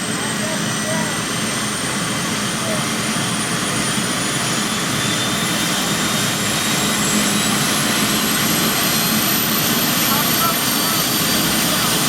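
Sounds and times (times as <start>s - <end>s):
helicopter turbine engine whine: 0.0s - 12.0s.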